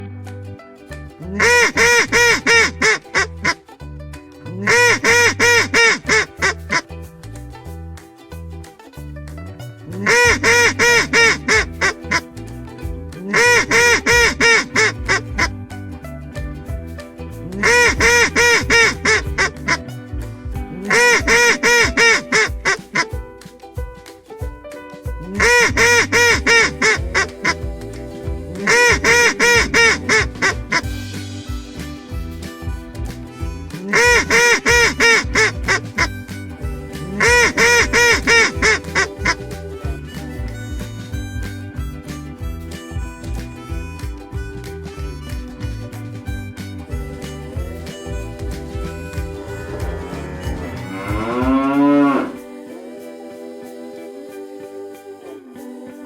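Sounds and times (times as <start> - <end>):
background music with bass: 0.0 - 56.0
duck quacking: 1.3 - 3.6, 4.6 - 6.8, 10.0 - 12.3, 13.2 - 15.6, 17.6 - 19.9, 20.8 - 23.2, 25.4 - 28.0, 28.6 - 31.1, 33.8 - 40.9, 46.9 - 52.4
geese honking: 1.3 - 3.6, 4.6 - 6.8, 10.0 - 12.3, 13.3 - 15.5, 17.6 - 19.9, 20.8 - 23.1, 25.4 - 31.1, 33.8 - 40.6, 46.9 - 52.4.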